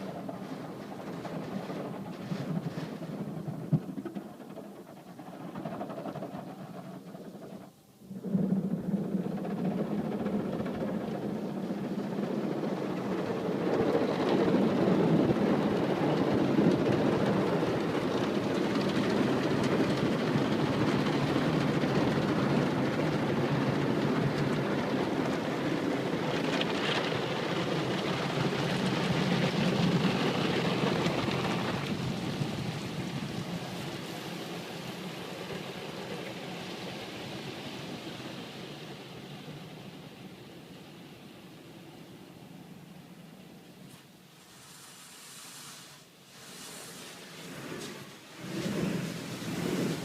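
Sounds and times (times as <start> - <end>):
continuous rushing noise: 0.0 - 50.0
car wash machine humming: 46.4 - 50.0.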